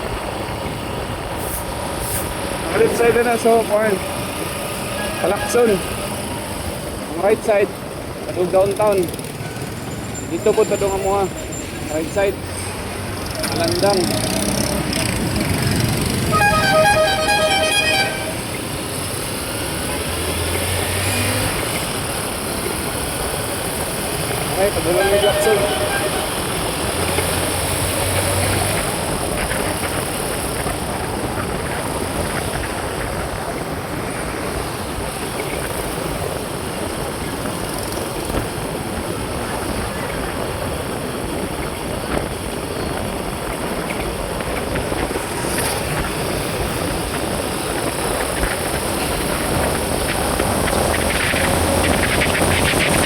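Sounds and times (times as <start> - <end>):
road noise: 0.0 - 53.0
wind noise: 20.8 - 53.0.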